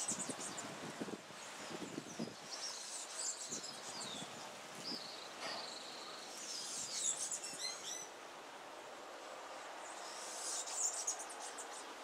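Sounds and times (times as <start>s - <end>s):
small birds chirping and whistling: 0.0s - 0.8s, 1.4s - 8.1s, 9.8s - 11.9s.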